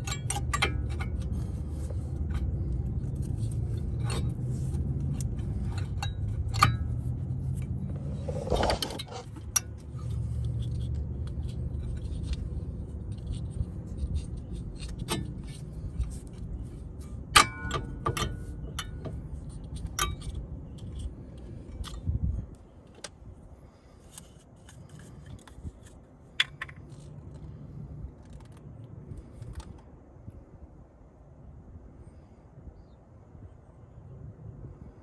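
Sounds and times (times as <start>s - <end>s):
metal tools clinking and rattling: 0.0s - 22.0s
loud ringing metal clink: 17.4s - 18.9s.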